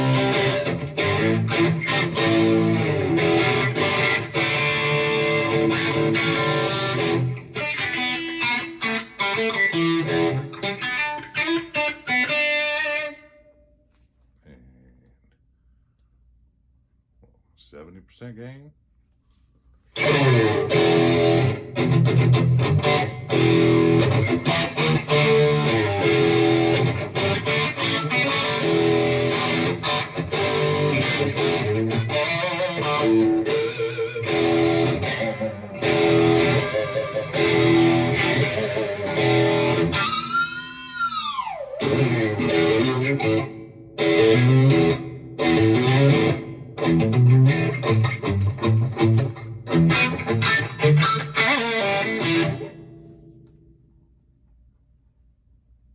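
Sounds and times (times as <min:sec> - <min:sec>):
electric guitar riffs and chords: 0:00.0 - 0:13.5, 0:20.0 - 0:53.5.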